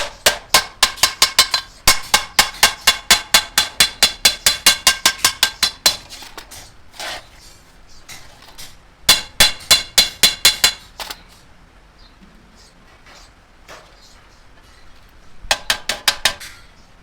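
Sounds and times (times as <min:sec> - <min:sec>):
hammer on sheet metal: 0:00.0 - 0:06.2, 0:09.1 - 0:10.9, 0:15.5 - 0:16.7.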